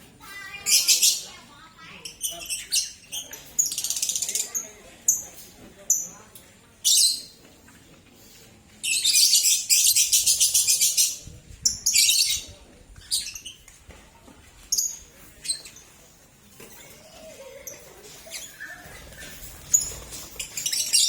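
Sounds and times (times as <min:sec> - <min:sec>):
lovebirds chattering: 0:00.3 - 0:07.4, 0:08.8 - 0:13.8, 0:16.7 - 0:21.0.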